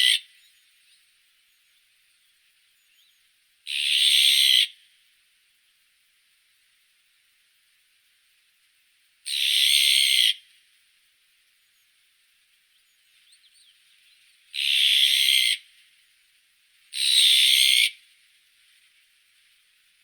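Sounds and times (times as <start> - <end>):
magpie harsh raspy calls: 0.0 - 0.3, 3.7 - 4.8, 9.3 - 10.4, 14.5 - 15.7, 16.9 - 18.0.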